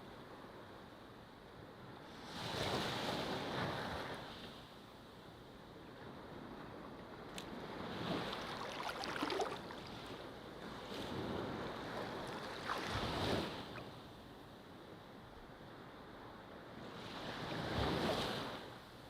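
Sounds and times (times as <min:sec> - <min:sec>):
ocean waves washing onto beach: 0:06.1 - 0:14.0.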